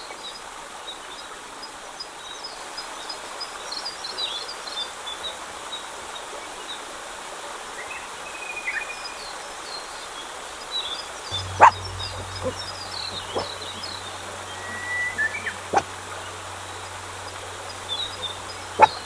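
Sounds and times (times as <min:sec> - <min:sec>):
outdoor background hiss: 0:10.2 - 0:19.0
dog barking: 0:11.3 - 0:13.5, 0:18.7 - 0:19.0
birds chirping: 0:11.3 - 0:19.0.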